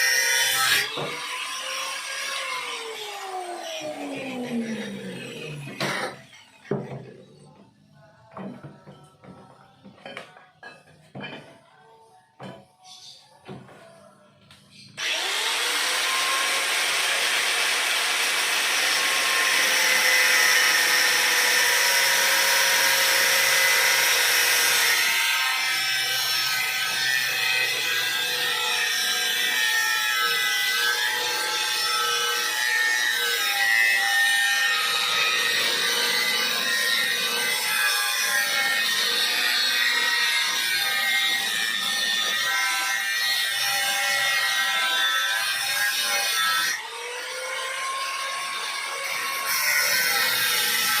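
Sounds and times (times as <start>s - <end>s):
power tool running under load: 15.0s - 44.8s.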